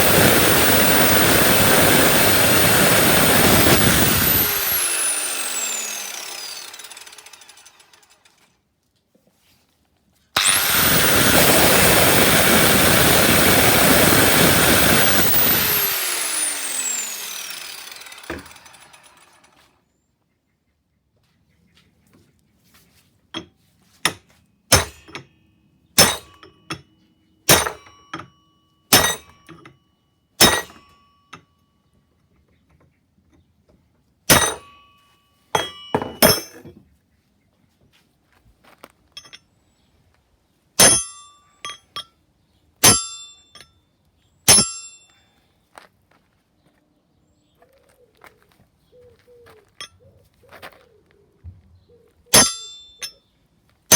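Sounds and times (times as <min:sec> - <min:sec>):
hammer striking steel: 0:24.1 - 0:25.3, 0:26.0 - 0:26.8, 0:27.5 - 0:28.3, 0:28.9 - 0:29.6, 0:30.4 - 0:31.0, 0:34.3 - 0:34.8, 0:35.6 - 0:36.7, 0:40.8 - 0:42.1, 0:42.8 - 0:43.7, 0:44.5 - 0:45.0, 0:52.4 - 0:53.2.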